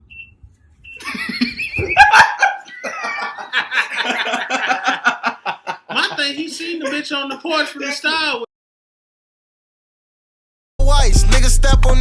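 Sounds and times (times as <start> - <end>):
people laughing: 1.0 - 8.5.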